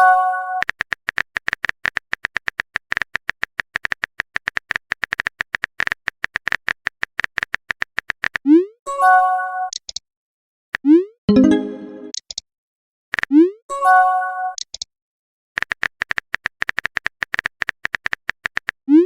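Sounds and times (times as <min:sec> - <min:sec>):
message chime: 0:11.3 - 0:12.1.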